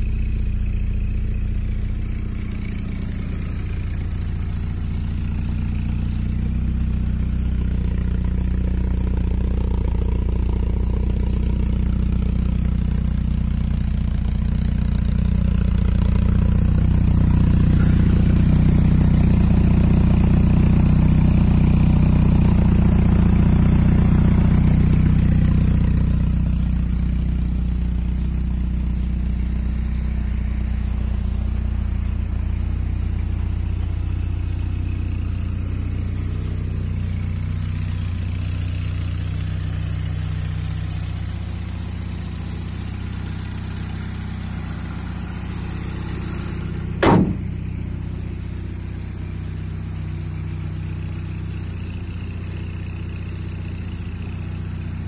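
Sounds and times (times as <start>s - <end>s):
car engine idling: 0.0s - 55.0s
sharp click: 47.0s - 47.5s.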